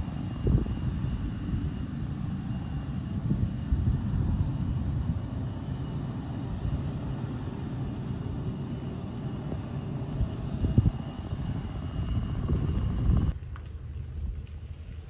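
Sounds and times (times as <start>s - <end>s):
distant airliner engines rumbling: 0.0s - 13.7s.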